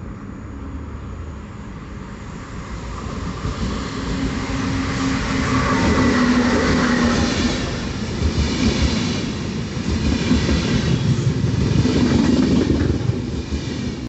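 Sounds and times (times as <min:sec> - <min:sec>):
train rumbling past: 0:00.0 - 0:14.0.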